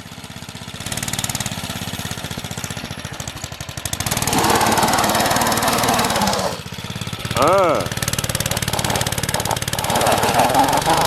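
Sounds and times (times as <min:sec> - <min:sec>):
minibike engine idling: 0:00.0 - 0:11.0.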